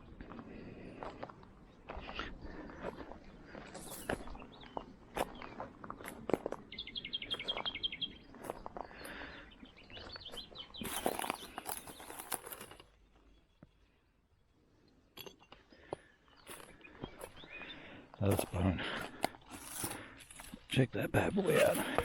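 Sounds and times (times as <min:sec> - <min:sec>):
bird chirping: 0:01.7 - 0:15.0, 0:15.7 - 0:21.7
footsteps crunching through dry leaves: 0:10.0 - 0:12.8, 0:19.4 - 0:20.7.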